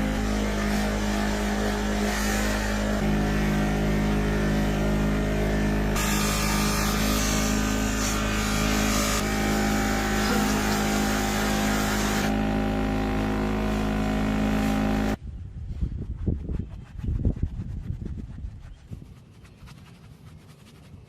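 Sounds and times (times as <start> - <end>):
rubbing and scraping: 0.0 - 12.4, 13.6 - 21.0
electric power tool grinding: 0.0 - 15.2.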